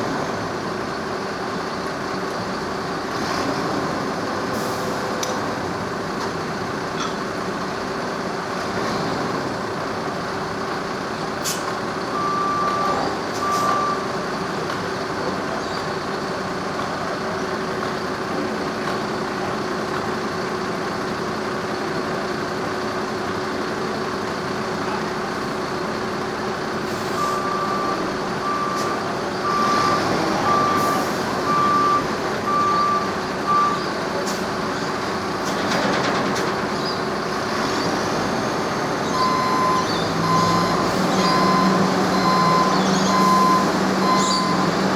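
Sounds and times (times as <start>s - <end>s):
engine running: 0.0s - 44.9s
reversing alarm beeping: 12.1s - 14.2s, 27.0s - 33.9s, 39.0s - 44.9s.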